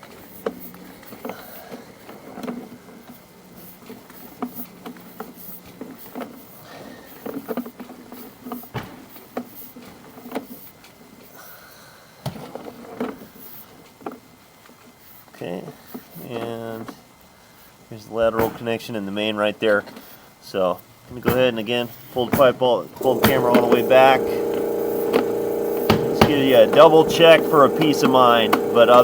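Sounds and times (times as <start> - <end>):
steady low hum: 22.8 - 29.0.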